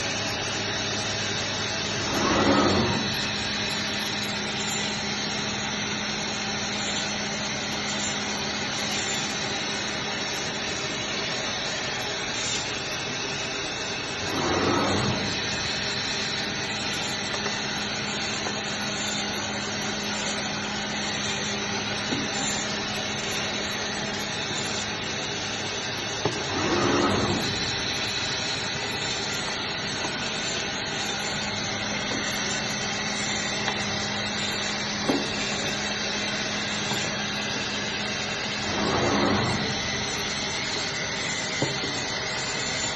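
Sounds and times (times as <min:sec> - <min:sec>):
band saw cutting meat: 0:00.0 - 0:42.9.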